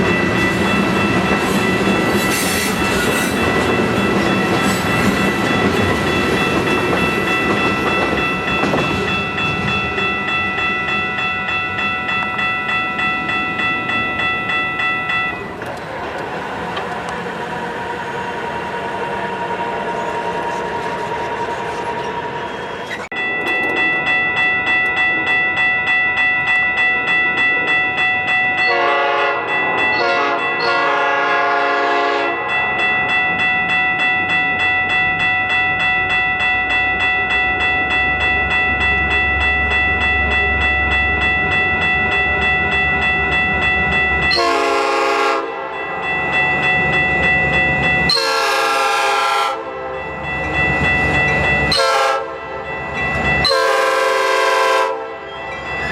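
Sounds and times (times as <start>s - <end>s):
crossing bell ringing: 0.0s - 55.9s
passing train rumble: 0.0s - 55.9s
train horn blasts: 28.7s - 32.4s, 44.3s - 45.8s, 48.1s - 50.1s, 51.7s - 52.6s, 53.4s - 55.3s.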